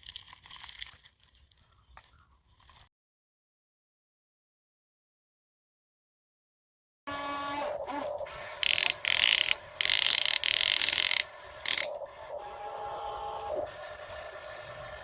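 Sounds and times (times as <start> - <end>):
small electric motors whining: 7.1 - 15.0
harsh gear grinding: 7.4 - 15.0.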